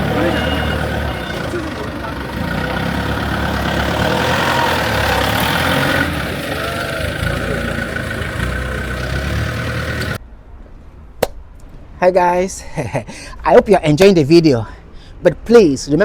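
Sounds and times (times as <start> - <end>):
excavator diesel engine running: 0.0 - 10.2.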